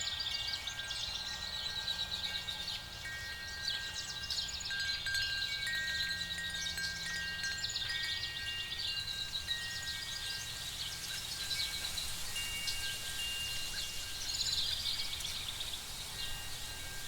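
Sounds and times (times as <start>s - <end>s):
soft chime-like tones: 0.0s - 17.0s.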